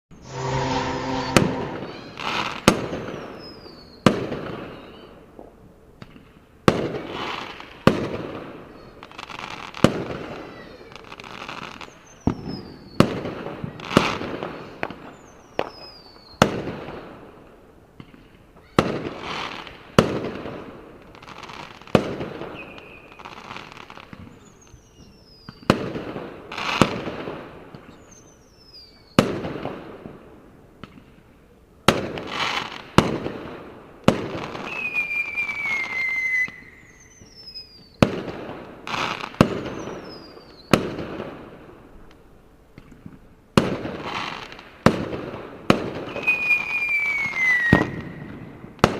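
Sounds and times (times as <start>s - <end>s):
fireworks falling whistles: 0.2s - 4.0s, 11.6s - 13.2s, 22.5s - 25.8s, 34.1s - 38.1s, 38.9s - 40.8s, 46.0s - 48.9s
fireworks banging and crackling: 4.0s - 17.2s, 18.0s - 28.1s, 30.8s - 31.2s, 31.9s - 41.8s, 42.8s - 48.9s.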